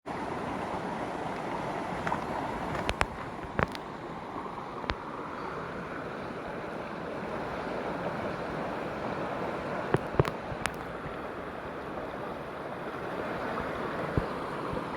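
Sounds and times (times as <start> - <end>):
stream water rushing: 0.1 - 14.9
sharp clicks and knocks: 10.0 - 10.9.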